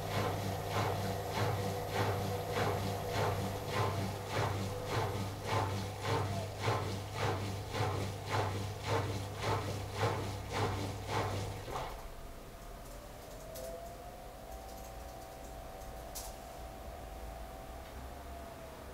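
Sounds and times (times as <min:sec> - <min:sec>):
washing machine drum turning: 0:00.0 - 0:11.9.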